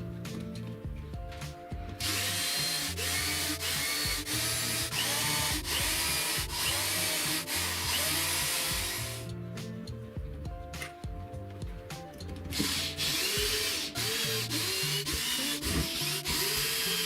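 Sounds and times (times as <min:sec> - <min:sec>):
background music: 0:00.0 - 0:17.0
power tool running: 0:02.0 - 0:09.3, 0:12.5 - 0:17.0.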